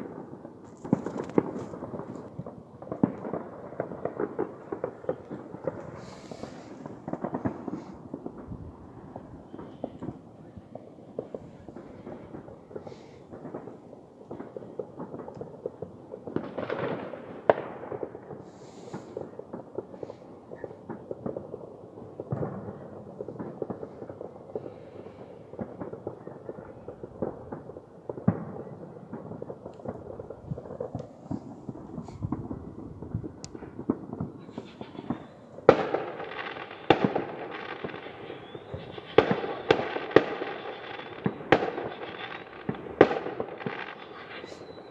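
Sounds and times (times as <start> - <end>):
sharp firework bangs: 0.0 - 15.3, 25.6 - 44.9
fireworks popping and crackling: 0.0 - 44.9.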